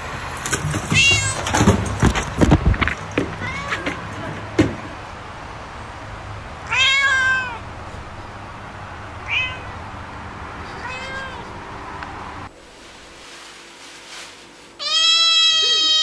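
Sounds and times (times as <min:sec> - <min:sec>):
cat meowing: 0:03.4 - 0:04.1, 0:06.6 - 0:07.6, 0:09.2 - 0:09.8, 0:10.7 - 0:11.5, 0:14.8 - 0:16.0.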